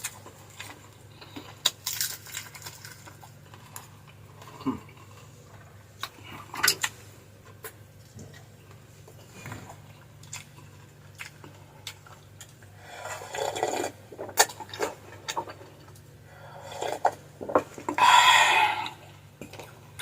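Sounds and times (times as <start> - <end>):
chewing: 0.0 - 16.1.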